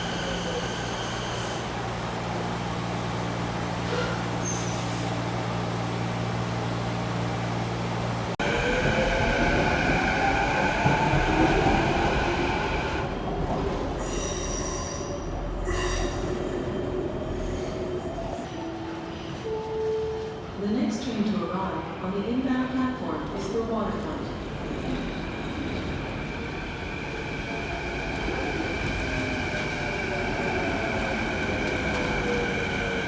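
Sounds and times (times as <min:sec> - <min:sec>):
train running hum: 0:00.0 - 0:14.8, 0:22.8 - 0:33.0.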